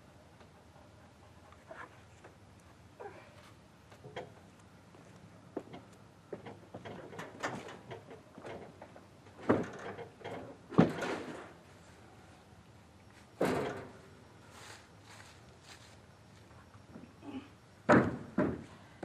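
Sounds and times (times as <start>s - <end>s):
light wooden clatter: 3.3s - 11.6s.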